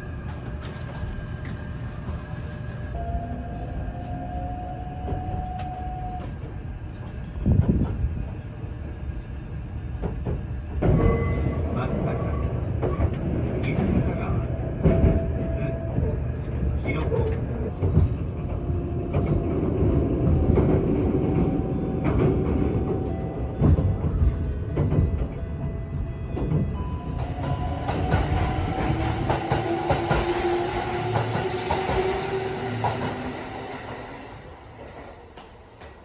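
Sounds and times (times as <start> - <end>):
train motor whine: 0.0 - 36.0
train rumbling on rails: 0.0 - 36.0
train hiss: 27.4 - 35.8.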